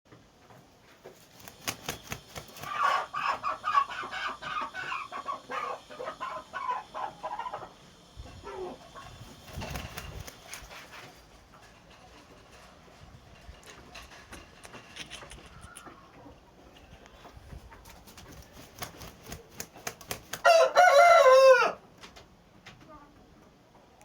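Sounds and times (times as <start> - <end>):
chicken clucking: 2.5 - 10.2, 13.7 - 18.5.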